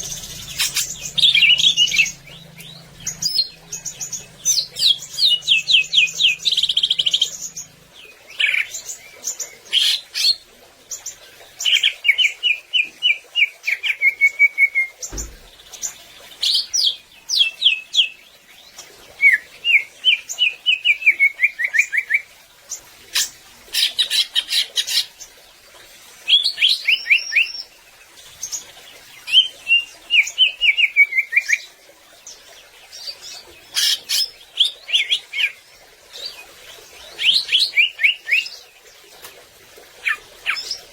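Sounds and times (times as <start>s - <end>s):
bird singing chattering phrases: 0.0s - 8.8s, 40.0s - 40.9s
low thump: 15.1s - 15.7s.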